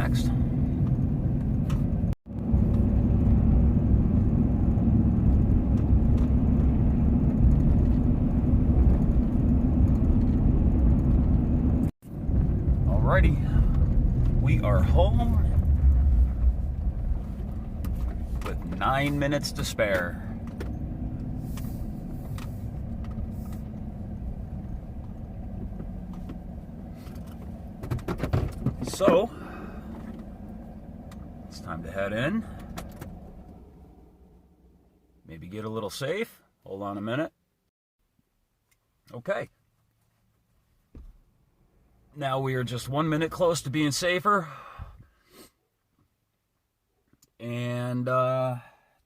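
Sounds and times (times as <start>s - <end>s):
car engine and tyre noise: 0.0s - 36.2s.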